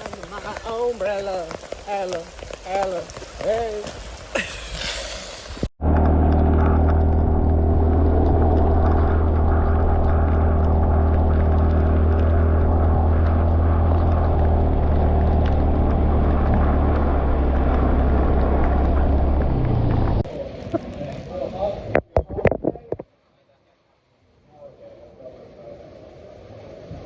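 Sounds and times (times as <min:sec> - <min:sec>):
road noise: 0:00.0 - 0:22.2
wind noise: 0:00.0 - 0:23.1, 0:25.4 - 0:27.0
motorbike engine droning: 0:05.8 - 0:20.3.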